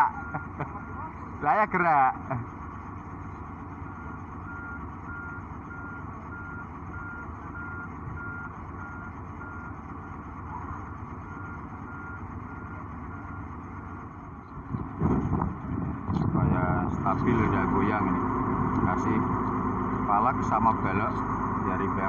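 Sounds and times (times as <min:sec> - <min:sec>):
reversing alarm beeping: 0:00.0 - 0:00.6, 0:03.3 - 0:14.0
diesel engine running: 0:00.0 - 0:22.0.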